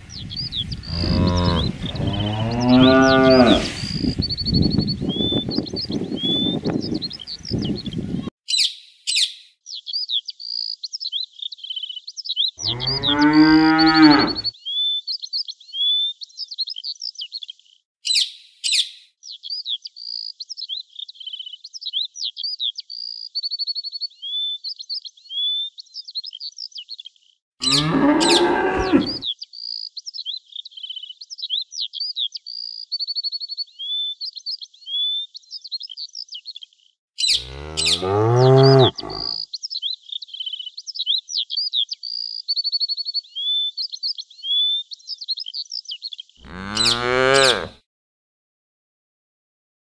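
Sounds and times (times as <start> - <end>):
high-pitched birdsong: 0.1 - 17.5, 27.6 - 36.6, 37.2 - 47.7
cow mooing: 0.8 - 3.8, 12.6 - 14.5, 27.6 - 29.2, 37.3 - 39.4, 46.4 - 47.8.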